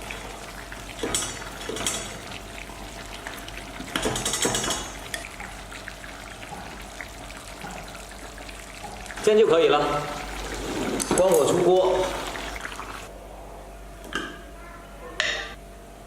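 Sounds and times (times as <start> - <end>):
stew bubbling and sizzling: 0.0 - 13.1
stirring in a clay pot: 0.0 - 13.1.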